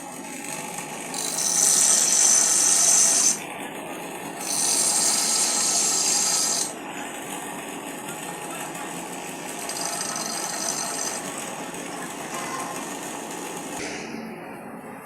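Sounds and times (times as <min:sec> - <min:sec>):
power tool hissing whine: 0:00.0 - 0:07.1, 0:08.0 - 0:11.8.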